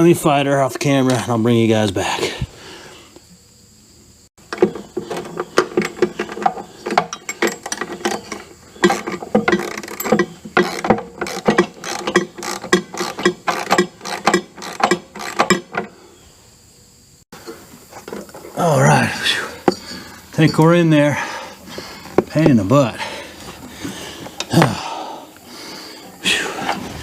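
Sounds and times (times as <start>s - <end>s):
metal clicks and clanks: 4.5s - 15.9s, 19.5s - 21.0s.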